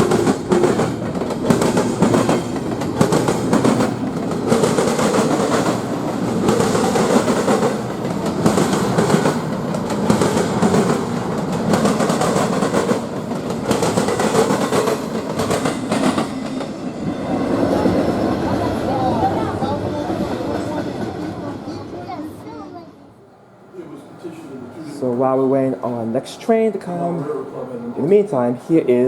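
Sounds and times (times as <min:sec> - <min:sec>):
train wheels clacking: 0:00.0 - 0:22.6
train rumbling: 0:00.0 - 0:29.0.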